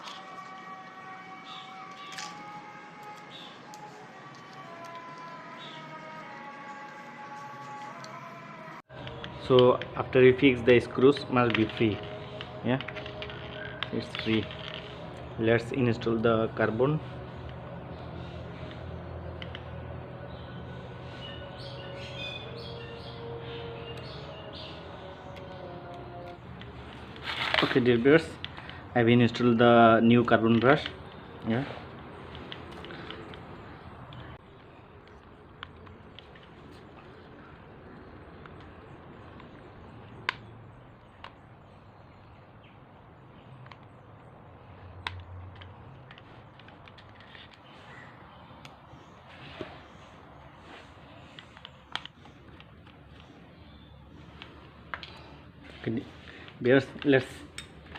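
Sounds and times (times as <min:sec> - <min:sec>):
small birds chirping: 0:00.0 - 0:06.9, 0:17.3 - 0:25.7, 0:47.3 - 0:57.4
tool parts clicking and tapping: 0:01.5 - 0:05.3.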